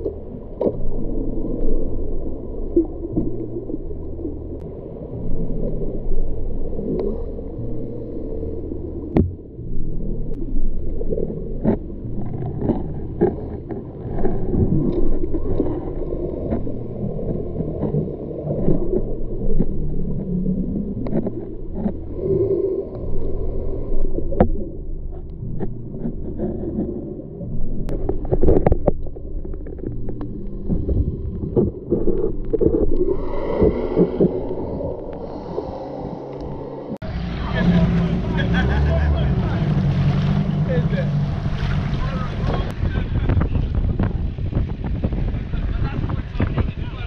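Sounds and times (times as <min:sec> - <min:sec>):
gurgling bubbles: 0:00.0 - 0:46.7
underwater rumbling water: 0:00.0 - 0:47.0.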